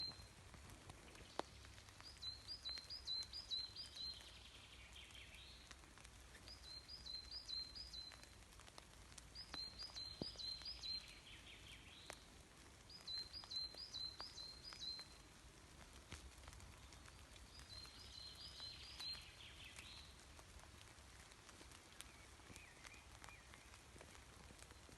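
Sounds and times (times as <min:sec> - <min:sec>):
songbird singing: 0:00.0 - 0:15.3, 0:16.1 - 0:24.9.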